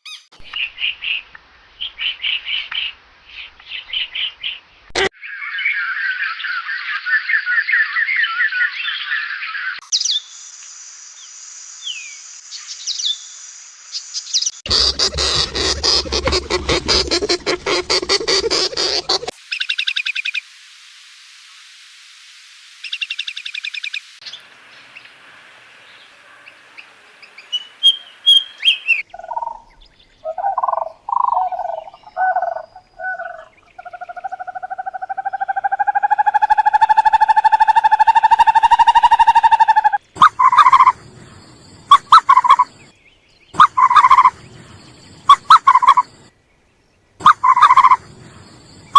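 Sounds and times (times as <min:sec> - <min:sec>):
bird chirps: 0:05.2 - 0:10.3, 0:27.2 - 0:46.3, 0:47.2 - 0:48.9
fast pulsing trills: 0:14.7 - 0:19.3
long loud steady animal call: 0:14.7 - 0:19.3, 0:27.9 - 0:41.0, 0:41.8 - 0:42.8, 0:43.6 - 0:44.4, 0:45.2 - 0:46.2, 0:47.2 - 0:48.9.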